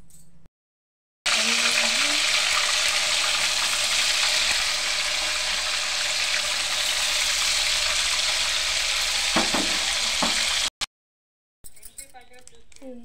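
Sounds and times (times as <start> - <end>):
food sizzling in hot oil: 1.3 - 10.7.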